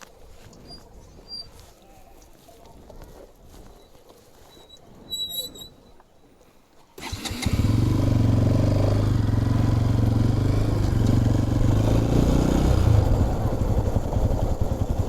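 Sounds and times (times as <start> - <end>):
motorcycle engine running: 7.0 - 15.0.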